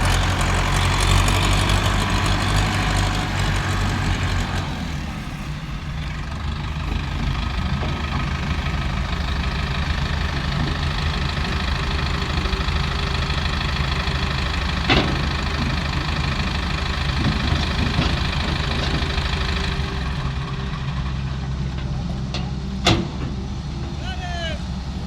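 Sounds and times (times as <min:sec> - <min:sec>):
diesel engine knocking rumble: 0:00.0 - 0:25.0.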